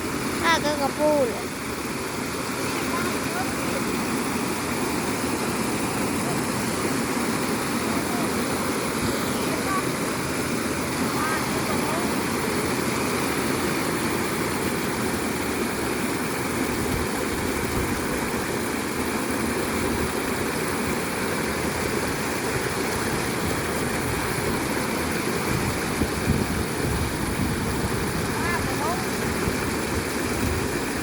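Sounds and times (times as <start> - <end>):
flowing water rushing: 0.0 - 31.0.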